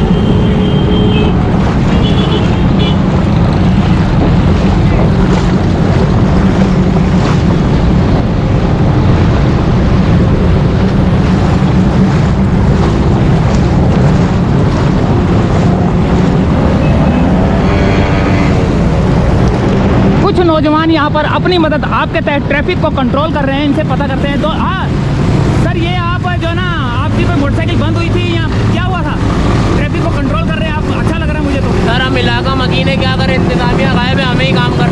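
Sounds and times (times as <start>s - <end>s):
vehicles driving through floodwater: 0.0s - 34.9s
wind buffeting microphone: 1.2s - 25.6s.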